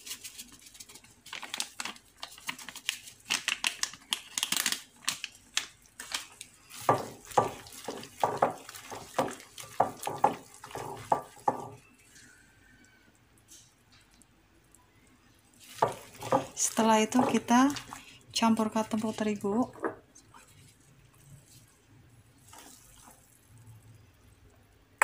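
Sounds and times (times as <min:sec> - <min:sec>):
spice packet rustling: 0:00.0 - 0:11.8, 0:15.5 - 0:18.0
wet squelches of kneading: 0:05.8 - 0:14.2, 0:14.9 - 0:24.5.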